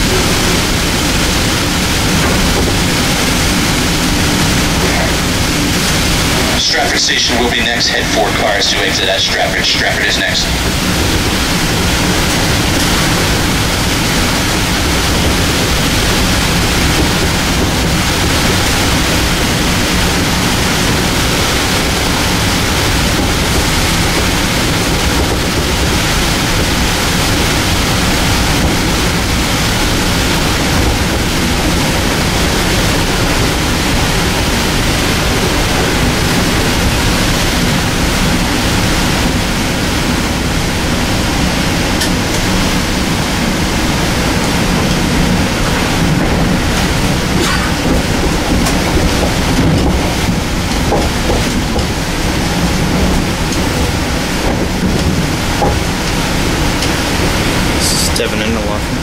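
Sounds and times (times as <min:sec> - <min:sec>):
train rumble from inside car: 0:00.0 - 0:59.0.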